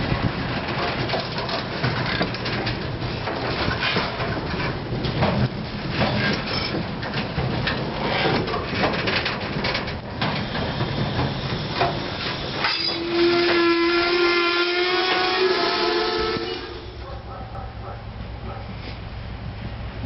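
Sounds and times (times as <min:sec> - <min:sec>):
train wheels clacking on rail joints: 0:00.0 - 0:19.0
locomotive horn: 0:12.6 - 0:17.1.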